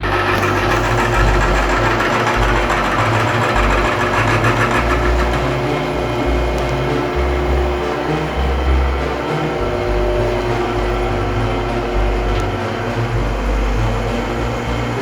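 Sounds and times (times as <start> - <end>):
milling machine cutting steel: 0.0 - 15.0.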